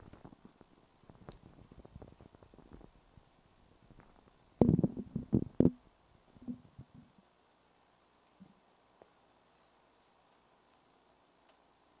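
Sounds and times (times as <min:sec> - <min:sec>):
faint click: 0:11.4 - 0:11.6.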